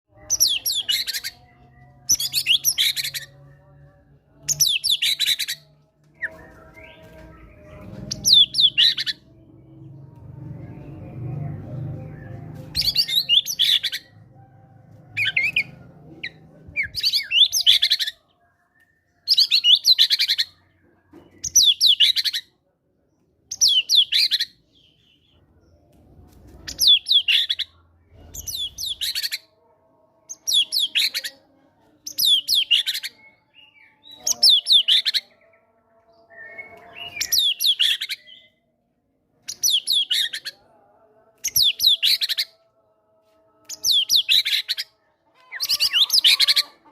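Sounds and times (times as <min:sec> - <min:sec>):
bird singing: 0:00.1 - 0:14.2, 0:32.0 - 0:38.6.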